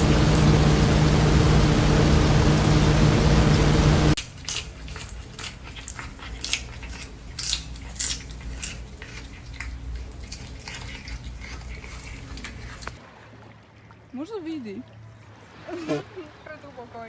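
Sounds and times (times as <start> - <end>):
low hum: 0.0 - 4.2
crunchy chewing: 4.3 - 13.0.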